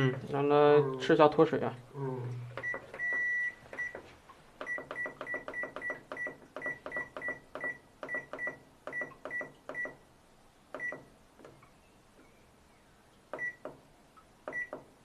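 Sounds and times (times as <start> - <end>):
washing machine panel beeping: 2.6 - 4.0, 4.6 - 10.0, 10.8 - 11.1, 13.4 - 13.7, 14.5 - 14.9.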